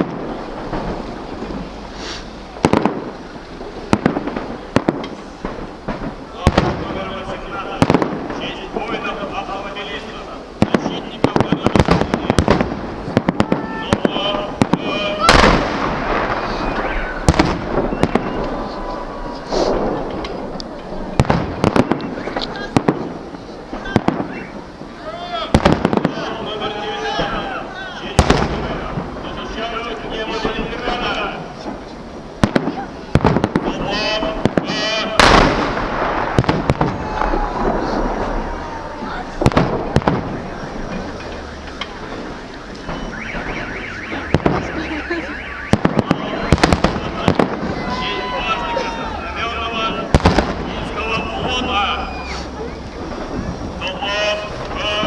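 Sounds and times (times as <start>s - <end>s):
crowd and street noise: 0.0s - 55.0s
firework bangs: 0.0s - 55.0s
fireworks crackling rumble: 0.0s - 55.0s
car alarm warbling: 16.4s - 19.0s, 24.2s - 24.7s, 39.1s - 55.0s.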